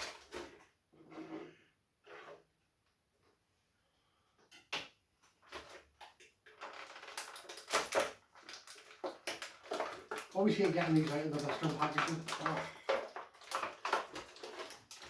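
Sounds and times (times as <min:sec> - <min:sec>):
plastic packaging crackling: 0:05.4 - 0:15.0.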